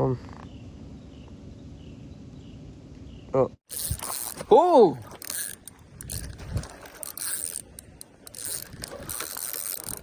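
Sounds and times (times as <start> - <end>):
fishing reel clicking and whirring: 3.7 - 10.0.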